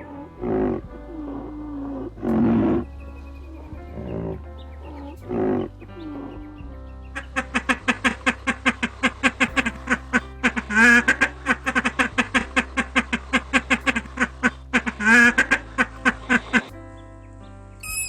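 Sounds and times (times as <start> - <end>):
duck quacking: 7.2 - 16.7.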